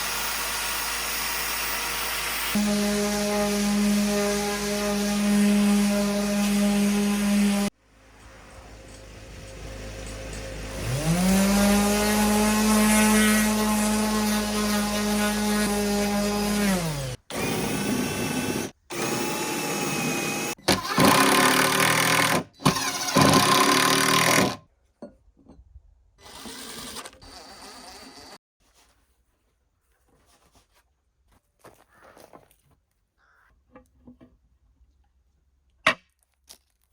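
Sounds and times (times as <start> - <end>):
power tool whining: 0.0 - 7.7, 9.5 - 24.6.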